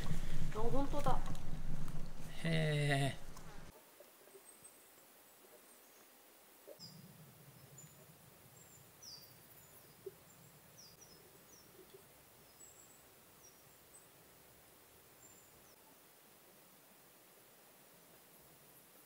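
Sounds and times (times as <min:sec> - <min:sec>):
low rumble: 0:00.0 - 0:03.7.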